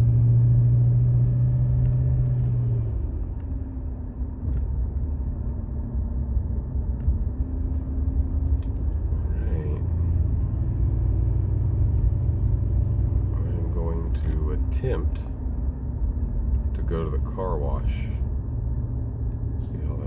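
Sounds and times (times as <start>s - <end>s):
car engine hum: 0.0s - 20.0s
road rumble: 0.0s - 20.0s.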